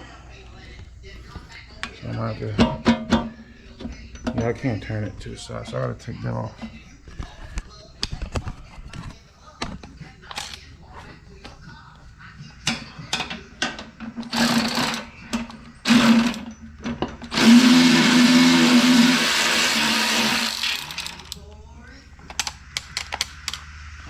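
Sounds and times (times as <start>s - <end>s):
electric power tool running: 14.2s - 15.1s, 15.8s - 16.5s, 17.3s - 21.4s
metal parts clicking: 20.4s - 21.4s.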